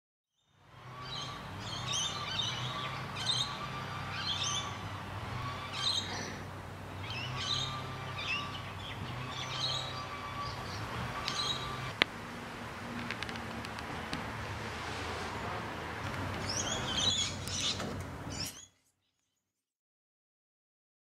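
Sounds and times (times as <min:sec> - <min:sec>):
birds chirping: 0:00.8 - 0:12.0, 0:16.2 - 0:19.4.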